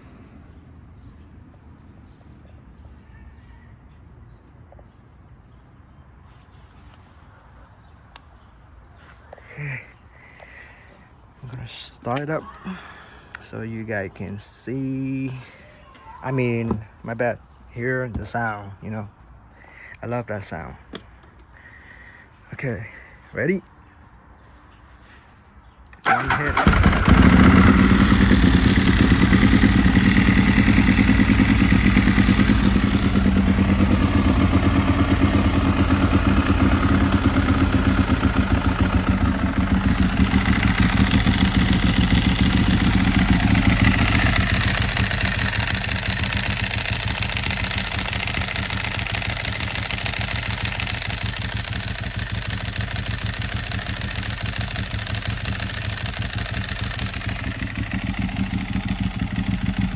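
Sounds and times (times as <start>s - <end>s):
motorcycle engine idling: 26.0s - 59.9s.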